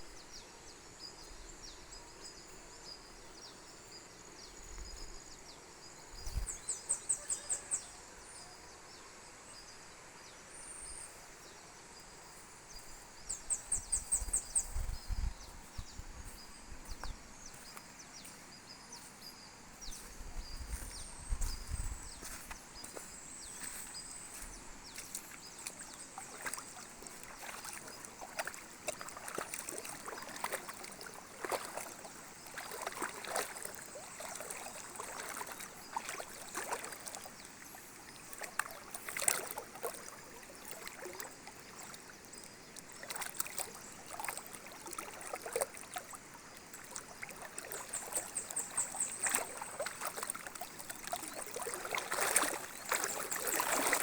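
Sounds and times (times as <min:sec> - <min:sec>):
faint high chirping: 0:00.0 - 0:08.8
small river trickling: 0:00.0 - 0:54.0
small water splashes: 0:05.9 - 0:07.9, 0:12.2 - 0:54.0.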